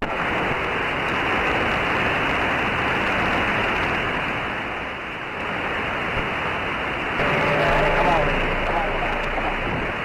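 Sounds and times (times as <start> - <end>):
radio static hiss: 7.2 - 10.0.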